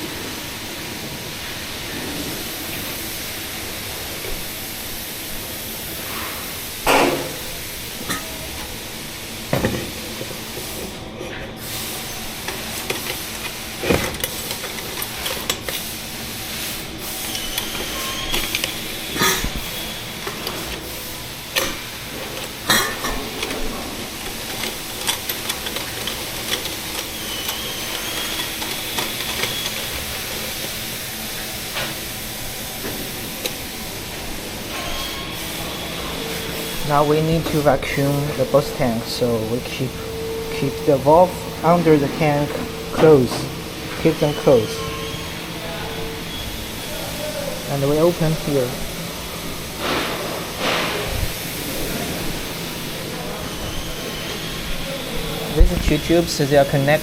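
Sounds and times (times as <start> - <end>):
machinery hissing: 0.0 - 57.0.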